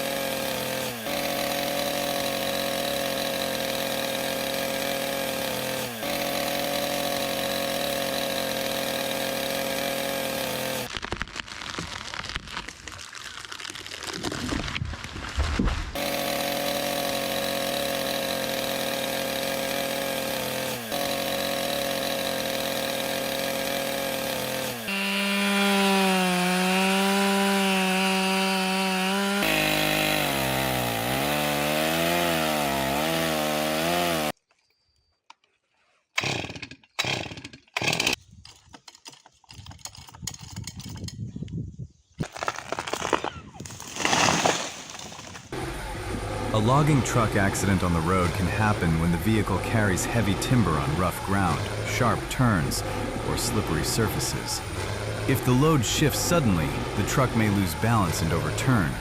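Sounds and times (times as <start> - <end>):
chainsaw cutting: 0.0 - 12.4, 15.5 - 34.4, 36.1 - 38.2, 42.3 - 59.0
sharp cracks and knocks: 10.8 - 16.0, 42.2 - 45.6.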